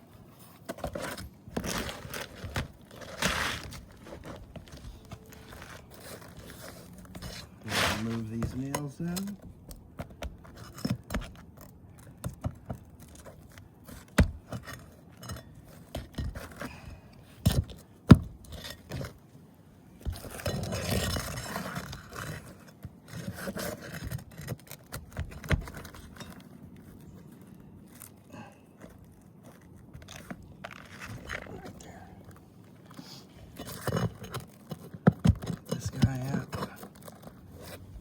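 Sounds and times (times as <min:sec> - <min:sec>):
metal tool scraping: 0:00.8 - 0:09.3.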